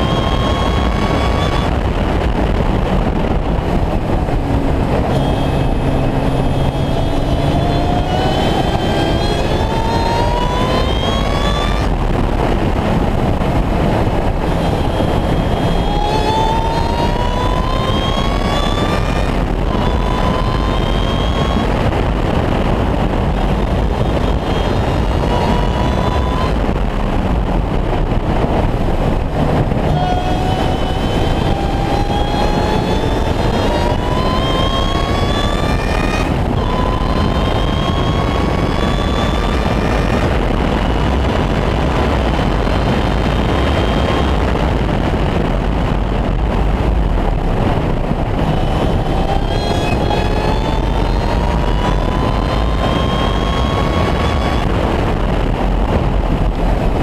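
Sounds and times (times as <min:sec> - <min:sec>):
car engine accelerating hard: 0:00.0 - 0:57.0
heavy wind noise: 0:00.0 - 0:57.0.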